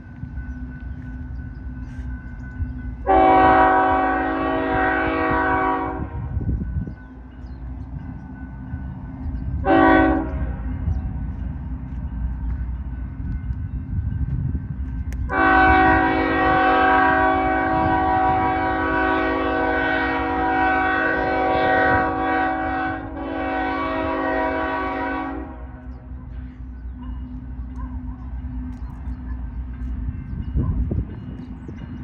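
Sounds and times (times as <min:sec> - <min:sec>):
passing train rumble: 0:00.0 - 0:32.0
train air horn blasts: 0:03.0 - 0:06.4, 0:09.6 - 0:10.6, 0:15.3 - 0:25.8.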